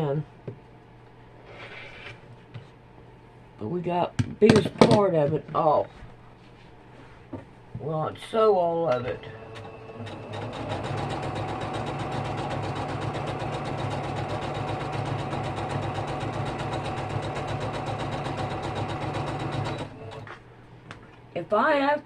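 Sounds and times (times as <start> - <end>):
sewing machine stitching: 9.4 - 20.3.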